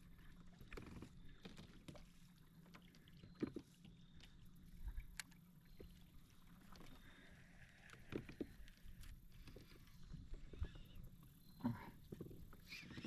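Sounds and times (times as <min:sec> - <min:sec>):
faint clicks and knocks: 0:00.5 - 0:06.0.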